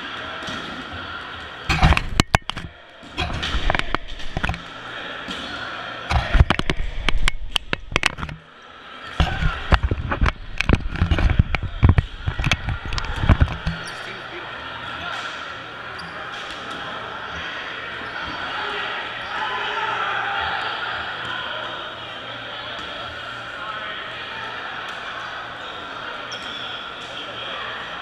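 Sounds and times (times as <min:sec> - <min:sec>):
players shouting: 0:08.5 - 0:26.3.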